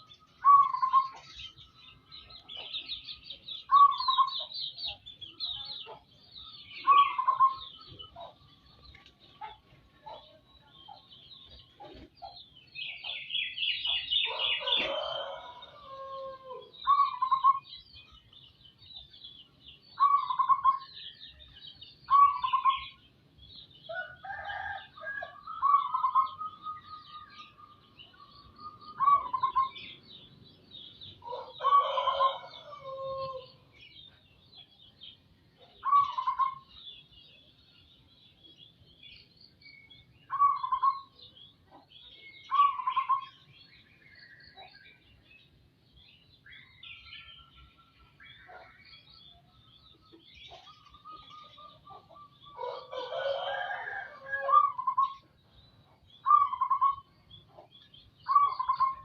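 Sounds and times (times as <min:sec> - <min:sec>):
dove cooing: 0:00.0 - 0:01.2, 0:06.8 - 0:08.4, 0:20.0 - 0:20.8, 0:24.3 - 0:26.9, 0:28.9 - 0:29.9, 0:31.2 - 0:33.4, 0:35.8 - 0:36.7, 0:40.3 - 0:41.1, 0:42.5 - 0:43.3, 0:50.5 - 0:55.2, 0:56.3 - 0:57.1, 0:58.3 - 0:59.0
small birds chirping: 0:00.0 - 0:59.0
rooster crowing: 0:14.3 - 0:17.2, 0:31.2 - 0:33.6, 0:52.5 - 0:55.0.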